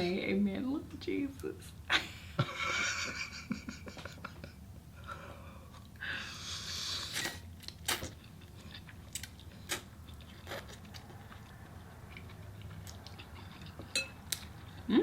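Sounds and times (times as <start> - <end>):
low steady hum: 0.0 - 15.0
person chewing food: 5.6 - 14.9.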